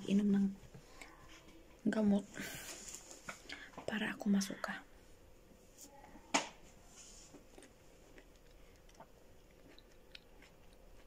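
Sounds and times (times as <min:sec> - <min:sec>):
person chewing quietly: 0:07.1 - 0:11.0.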